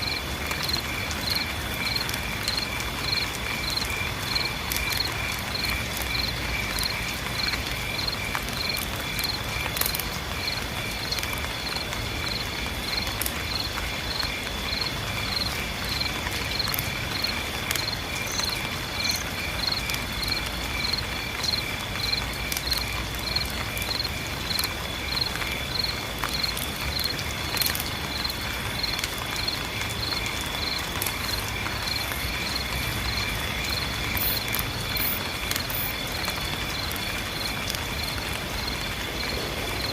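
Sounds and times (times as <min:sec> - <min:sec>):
insects chirping: 0:00.0 - 0:39.9
rain hissing: 0:00.0 - 0:39.9
water drips: 0:00.0 - 0:39.9.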